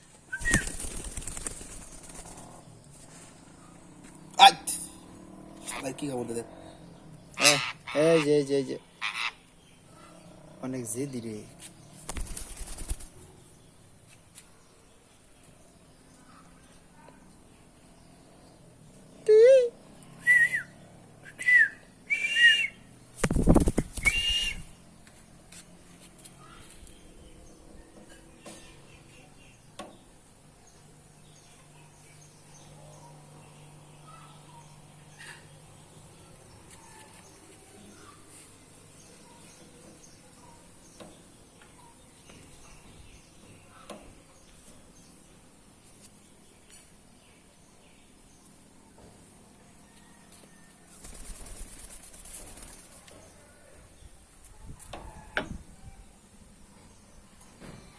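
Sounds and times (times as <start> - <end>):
parrot chicks shrill calls: 9.0 - 9.4.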